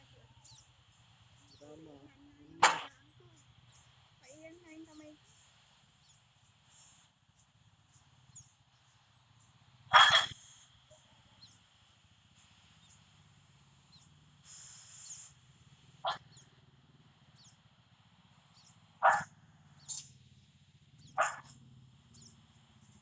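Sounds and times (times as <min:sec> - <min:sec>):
sharp animal calls: 0:01.5 - 0:03.5, 0:09.9 - 0:11.1, 0:16.0 - 0:16.4, 0:18.6 - 0:20.1, 0:21.0 - 0:22.3.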